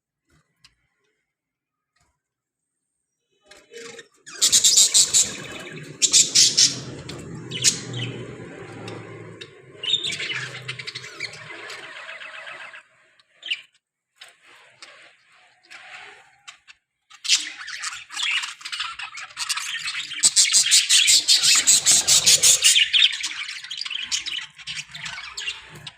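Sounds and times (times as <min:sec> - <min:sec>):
budgerigars chirping: 0:04.3 - 0:08.3, 0:08.9 - 0:12.4, 0:19.7 - 0:25.9.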